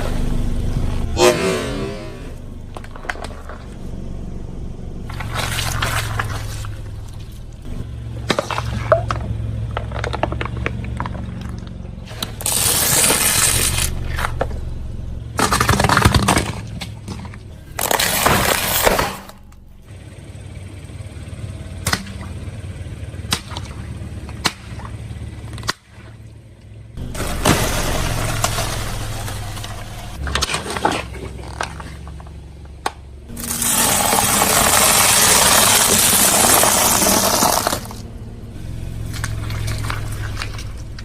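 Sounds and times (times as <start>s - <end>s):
car engine running: 0.0s - 41.0s
tyre crushing brittle objects: 8.2s - 14.4s, 15.4s - 19.6s, 27.0s - 32.4s, 33.3s - 38.0s.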